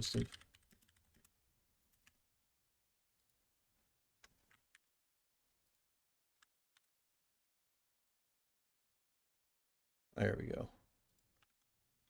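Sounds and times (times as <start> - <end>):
computer keys and mouse clicking: 0.0 - 2.2, 4.2 - 4.9, 6.4 - 7.0.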